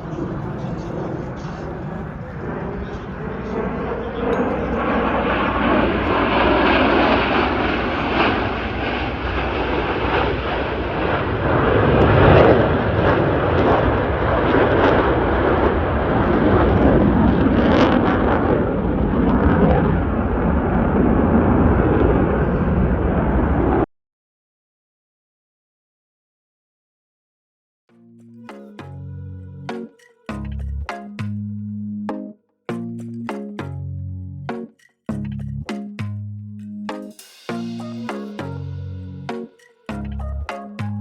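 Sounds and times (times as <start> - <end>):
jet aircraft flying past: 0.0 - 23.9.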